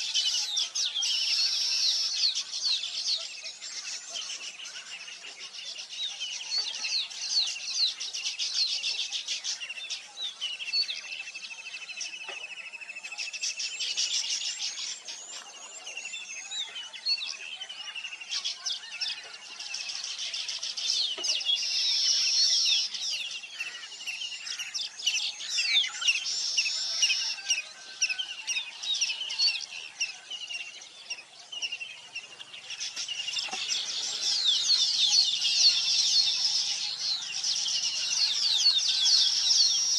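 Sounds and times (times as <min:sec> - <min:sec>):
chorus of small birds chirping: 0:00.0 - 0:39.9.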